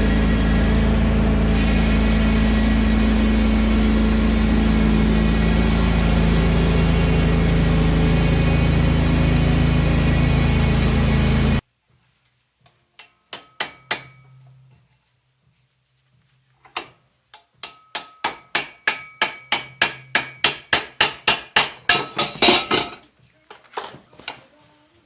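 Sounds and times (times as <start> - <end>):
loud steady noise: 0.0 - 11.6
hammer on steel plate: 13.0 - 14.4, 17.6 - 23.0.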